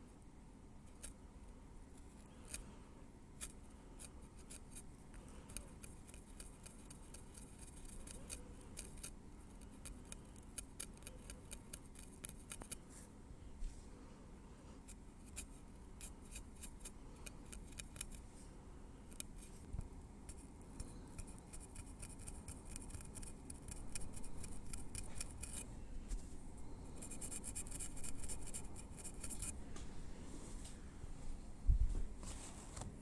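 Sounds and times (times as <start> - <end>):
metal tweezers clicking in hair: 21.2 - 25.6.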